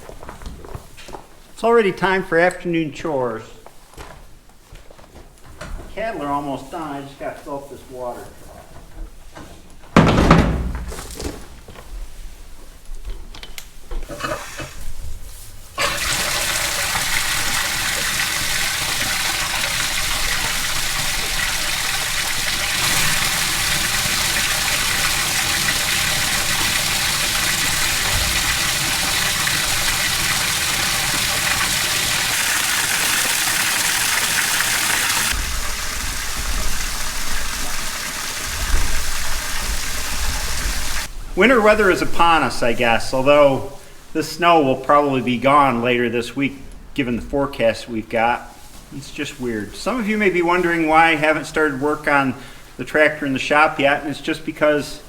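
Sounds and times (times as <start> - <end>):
water gushing into a trough: 15.8 - 41.1.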